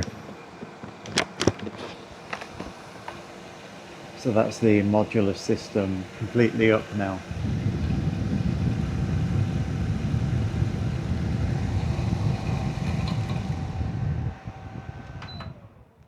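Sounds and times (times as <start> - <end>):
wind noise on microphone: 7.2 - 16.0.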